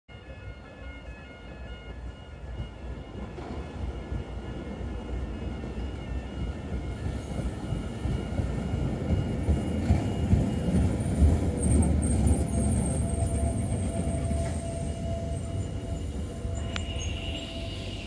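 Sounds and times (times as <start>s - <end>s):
train whine: 0.1s - 18.0s
train wheels rumbling on rails: 0.2s - 18.0s
faint high squeal: 12.0s - 18.0s.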